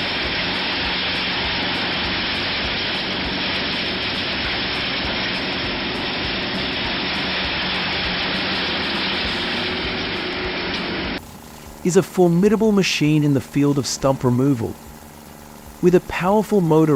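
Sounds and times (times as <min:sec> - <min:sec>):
heavy machinery engine running: 0:00.0 - 0:16.9.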